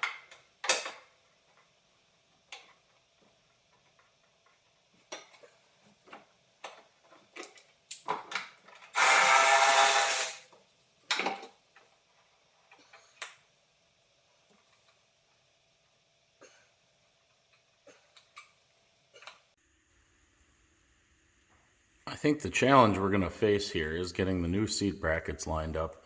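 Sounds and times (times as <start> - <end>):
power drill running: 8.9 - 10.4.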